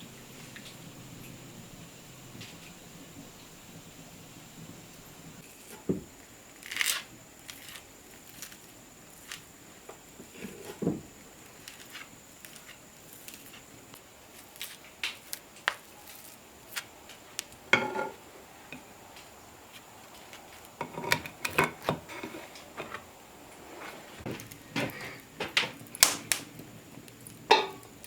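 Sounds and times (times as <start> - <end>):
dishes clattering: 17.7 - 18.2, 27.5 - 27.8
dish ringing clink: 27.5 - 27.9.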